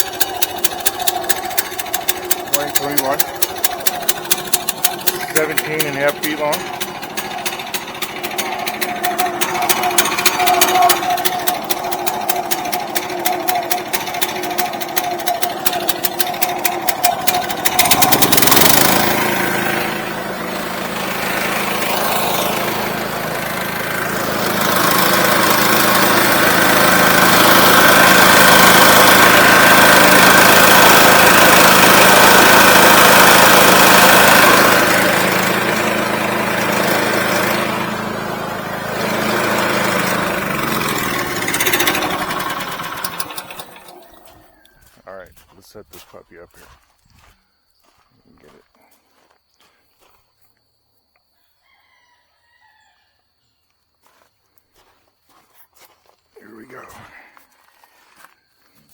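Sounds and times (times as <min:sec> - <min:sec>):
engine idling and revving: 0:00.0 - 0:44.6.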